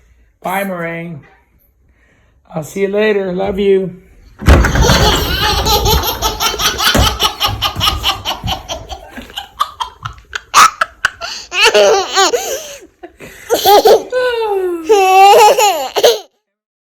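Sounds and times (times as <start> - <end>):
baby girl laughing: 4.7 - 12.9, 13.5 - 16.3.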